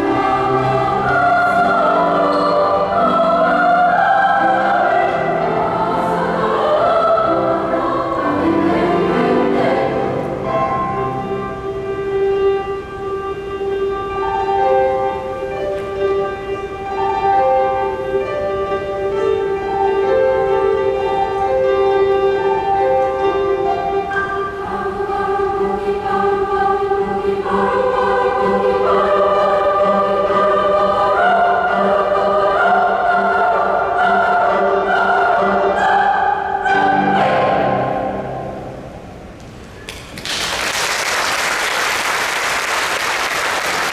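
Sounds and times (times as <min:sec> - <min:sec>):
choir singing: 0:00.0 - 0:39.3.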